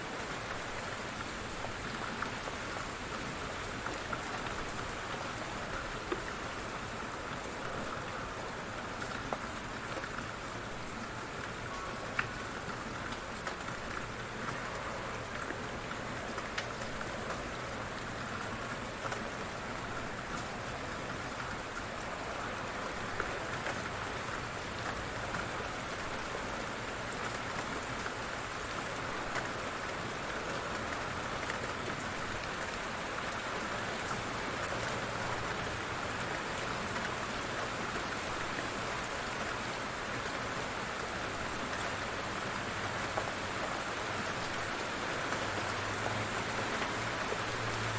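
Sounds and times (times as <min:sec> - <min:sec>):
light rain pattering: 0:00.0 - 0:47.9.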